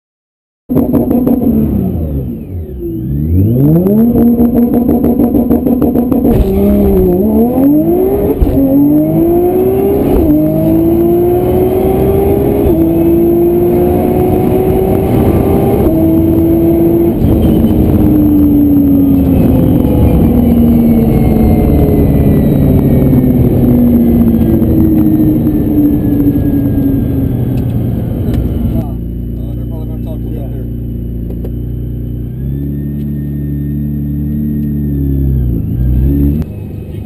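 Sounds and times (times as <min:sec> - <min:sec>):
car engine revving through gears: 0:00.7 - 0:37.0.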